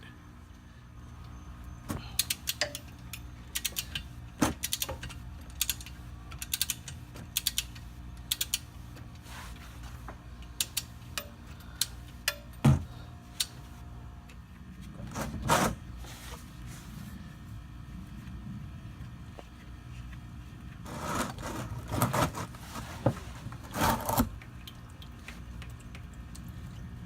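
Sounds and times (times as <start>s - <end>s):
steady low hum: 0.0s - 27.0s
ratchet wrench clicking: 2.2s - 4.0s, 4.6s - 8.6s, 10.5s - 12.5s.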